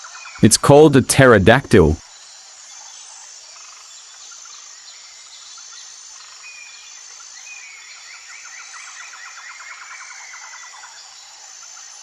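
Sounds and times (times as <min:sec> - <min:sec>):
outdoor background hiss: 0:00.4 - 0:08.3.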